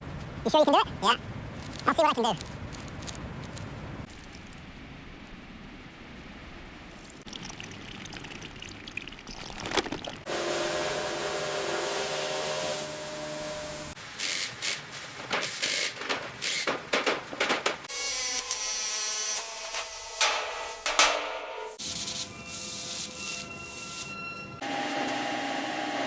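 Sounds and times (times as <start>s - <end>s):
pump humming: 10.3s - 14.0s
pressure washer spraying: 10.3s - 16.7s.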